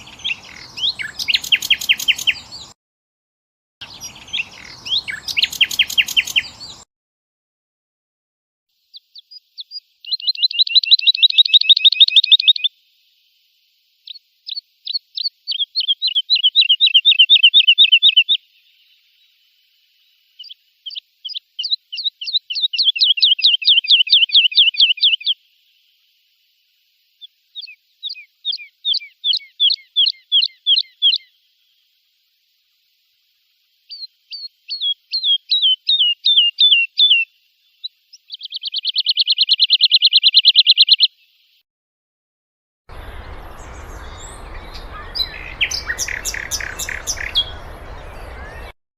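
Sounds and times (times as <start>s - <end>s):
goldfinch trilling song: 0.0s - 2.7s, 3.8s - 6.8s, 8.9s - 12.7s, 14.1s - 18.4s, 20.4s - 25.4s, 27.6s - 31.3s, 33.9s - 37.3s, 38.1s - 41.2s, 42.9s - 48.8s.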